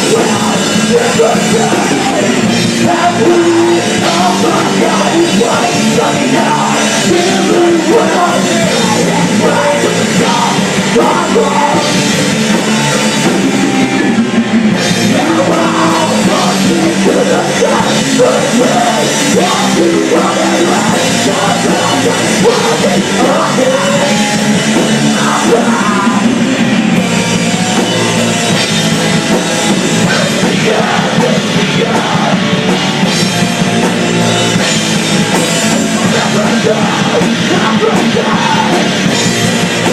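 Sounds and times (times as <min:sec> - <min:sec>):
bass: 0:00.0 - 0:39.9
distorted guitars: 0:00.0 - 0:39.9
drum kit: 0:00.0 - 0:39.9
shouted vocals: 0:15.1 - 0:26.4.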